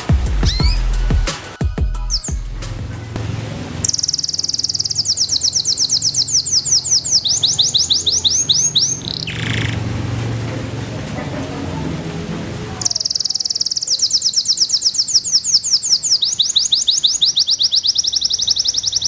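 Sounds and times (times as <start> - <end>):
canary trilling: 0.4 - 1.0, 2.0 - 3.2, 3.8 - 9.9, 12.8 - 19.0.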